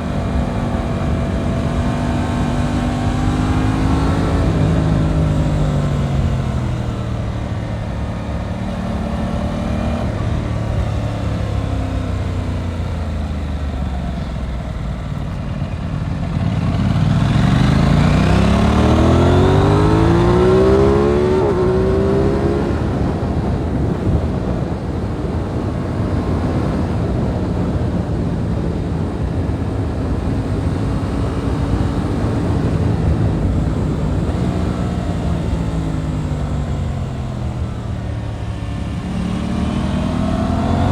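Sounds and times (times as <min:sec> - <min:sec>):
motorcycle engine running: 0:00.0 - 0:40.9
wind rush: 0:15.9 - 0:40.9.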